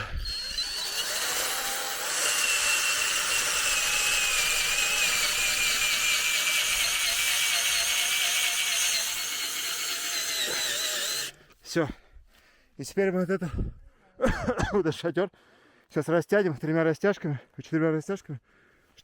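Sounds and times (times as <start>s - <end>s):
cordless drill motor whining: 0.0s - 11.4s.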